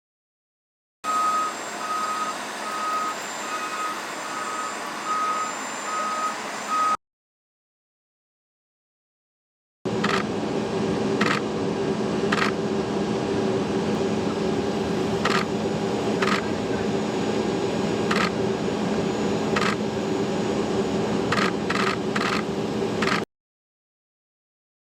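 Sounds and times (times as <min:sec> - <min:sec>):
loud mechanical hum: 0:01.0 - 0:07.0, 0:09.9 - 0:23.3.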